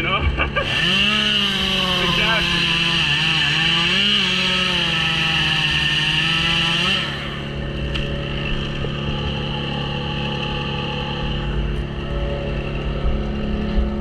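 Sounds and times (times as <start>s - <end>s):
chainsaw revving and idling: 0.6s - 13.0s.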